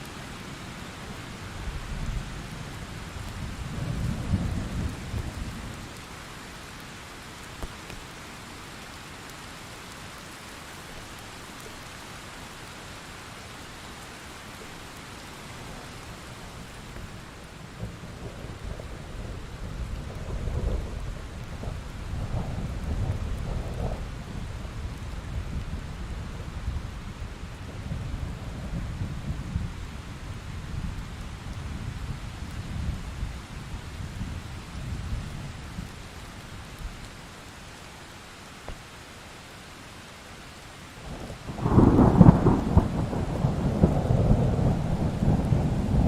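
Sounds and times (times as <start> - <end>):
steady rain: 0.0 - 46.0
low rolling thunder: 1.7 - 5.8, 17.7 - 35.9, 41.0 - 46.0.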